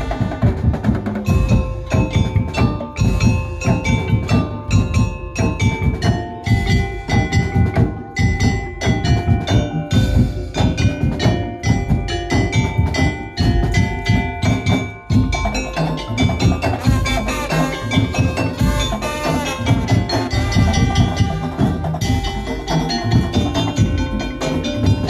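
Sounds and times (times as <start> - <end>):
percussion ensemble fast beat: 0.0 - 25.0
ringing pitched melody notes: 1.2 - 25.0.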